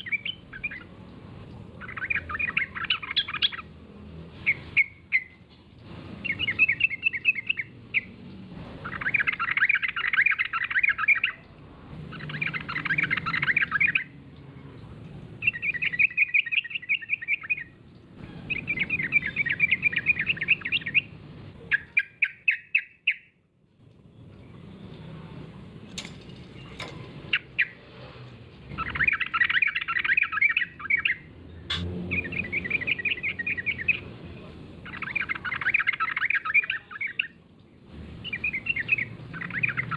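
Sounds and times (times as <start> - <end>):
bird singing chattering phrases: 0.0 - 1.0, 1.6 - 3.7, 8.8 - 14.2, 15.4 - 23.3, 28.6 - 37.4, 38.2 - 39.9.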